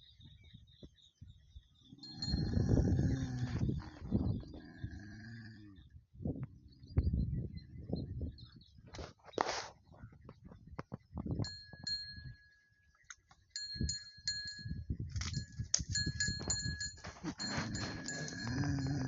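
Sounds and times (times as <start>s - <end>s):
dogs making low rough sounds: 1.8s - 7.2s, 17.2s - 19.0s.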